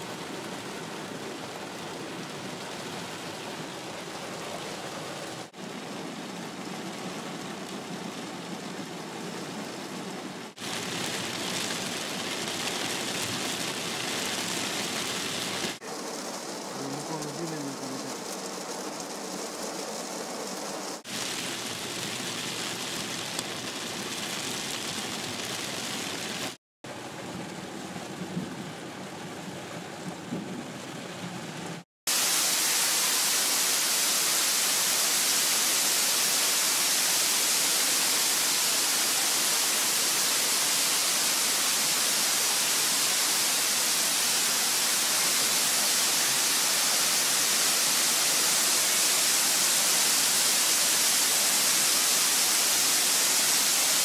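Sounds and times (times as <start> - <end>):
rain pouring on pavement: 0.0 - 54.0
rain pattering on a car: 0.1 - 31.8.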